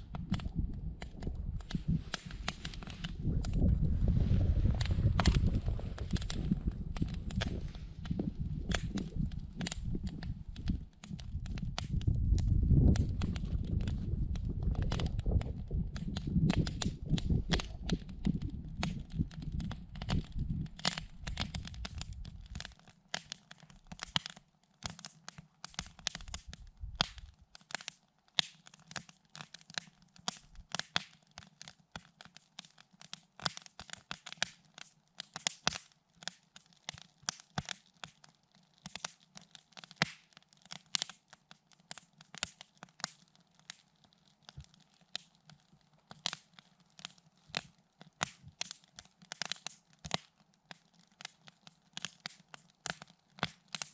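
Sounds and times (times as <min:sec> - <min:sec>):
low rumble: 0:00.0 - 0:22.6
campfire crackling and popping: 0:00.0 - 0:53.9.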